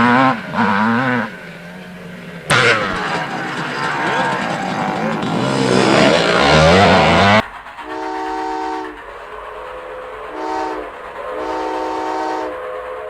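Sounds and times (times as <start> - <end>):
motor revving: 4.0 - 8.9
multi-tone horn chord: 6.0 - 9.0, 10.4 - 12.6.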